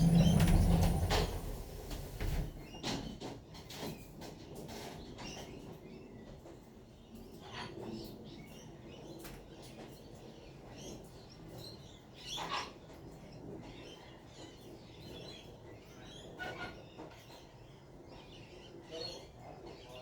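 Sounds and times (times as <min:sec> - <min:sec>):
wild birds chirping: 0:00.0 - 0:02.8.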